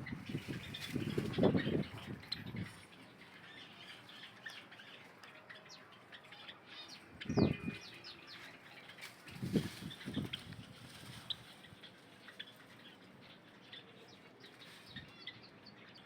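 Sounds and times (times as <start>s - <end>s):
sparrows chirping: 0.0s - 16.0s
wings flapping: 0.3s - 2.2s, 9.0s - 11.8s.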